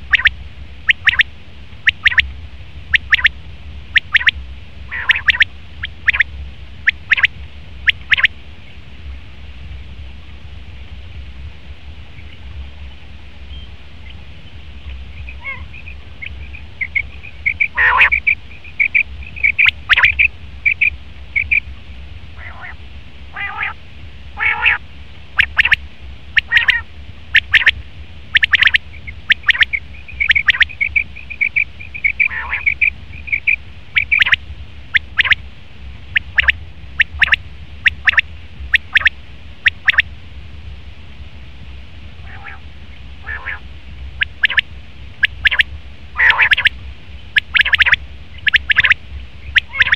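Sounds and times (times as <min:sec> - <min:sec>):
quail calling: 0:00.0 - 0:02.3, 0:03.0 - 0:03.3, 0:03.9 - 0:08.3, 0:15.2 - 0:21.6, 0:22.4 - 0:23.8, 0:24.4 - 0:24.8, 0:25.4 - 0:25.8, 0:26.4 - 0:27.8, 0:28.4 - 0:35.4, 0:36.2 - 0:40.0, 0:42.2 - 0:42.6, 0:43.2 - 0:43.6, 0:44.2 - 0:44.6, 0:45.2 - 0:46.8, 0:47.4 - 0:49.9
steady low hum: 0:00.0 - 0:49.9.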